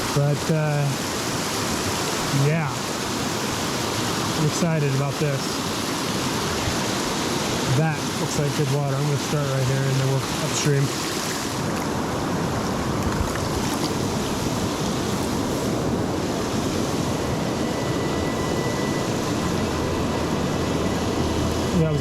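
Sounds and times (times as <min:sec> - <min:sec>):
river water flowing: 0:00.0 - 0:22.0.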